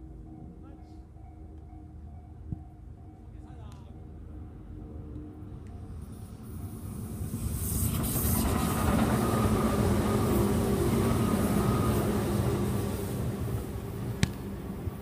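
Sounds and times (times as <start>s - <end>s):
train passing with rumbling whine: 0.0s - 15.0s.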